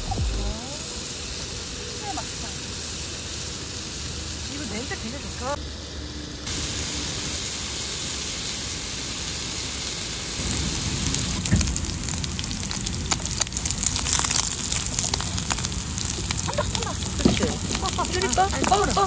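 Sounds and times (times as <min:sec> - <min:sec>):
meat sizzling in a frying pan: 0:00.6 - 0:19.0
fat crackling and popping: 0:10.4 - 0:19.0.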